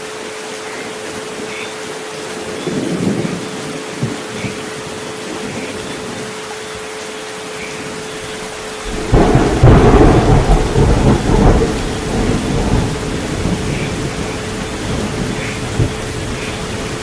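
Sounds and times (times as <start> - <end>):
steady rain: 0.0 - 17.0
thunder rumbling: 8.3 - 17.0.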